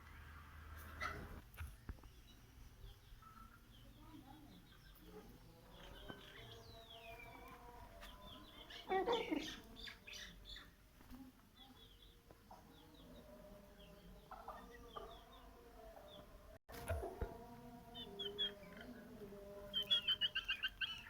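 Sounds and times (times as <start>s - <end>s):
birds chirping: 0.8s - 10.8s, 17.9s - 21.0s.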